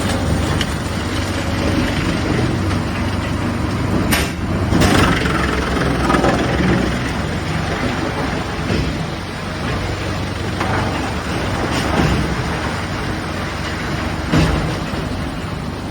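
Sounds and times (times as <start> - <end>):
wood chipper running: 0.0 - 15.9
sharp crack: 4.1 - 6.7.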